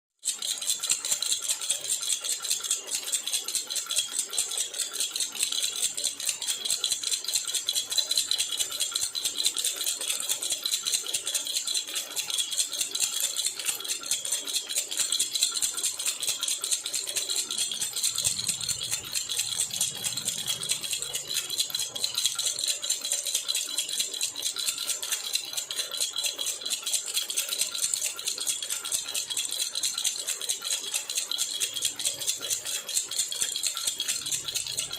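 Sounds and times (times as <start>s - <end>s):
baby rattle shaken: 0.3s - 34.9s.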